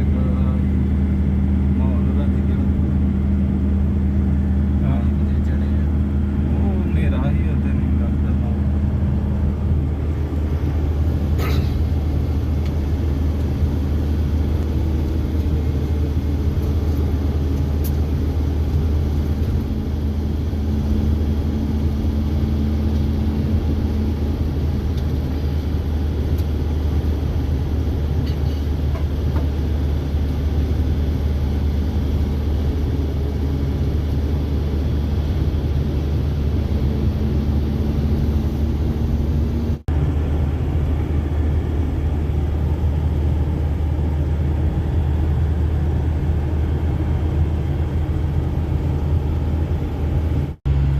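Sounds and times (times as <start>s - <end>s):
vehicle engine and road rumble: 0.0s - 50.9s.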